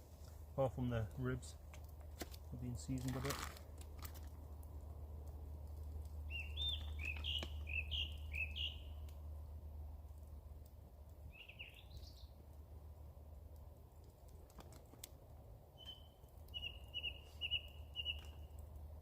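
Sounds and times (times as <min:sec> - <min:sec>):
songbird singing: 0:06.2 - 0:09.4, 0:11.2 - 0:12.4, 0:15.7 - 0:18.6.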